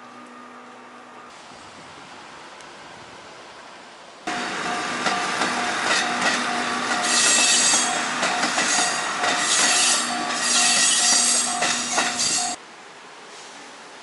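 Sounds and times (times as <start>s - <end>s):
train wheels squealing on rails: 4.3s - 12.6s
wheels clacking over rail joints: 4.3s - 12.6s.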